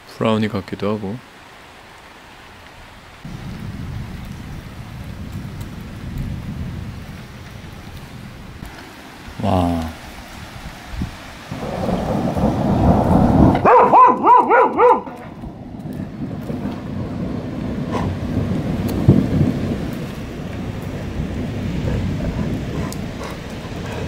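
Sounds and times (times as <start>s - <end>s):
steady rain: 0.0s - 24.0s
thunder rumbling: 3.2s - 24.0s
dog barking: 13.6s - 15.2s.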